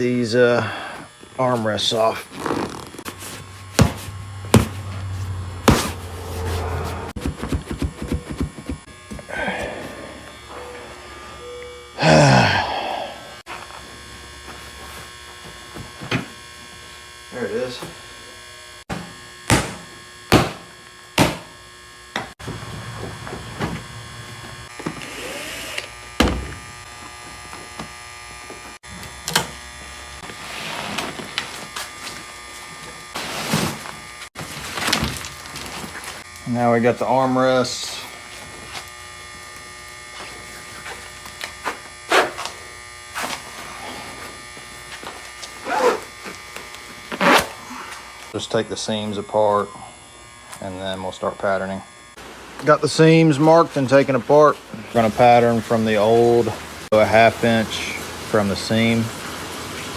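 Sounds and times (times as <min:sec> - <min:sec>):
power tool motor humming: 0:18.0 - 0:36.5, 0:37.7 - 0:48.4, 0:49.8 - 0:50.8
tool strikes: 0:18.9 - 0:21.6.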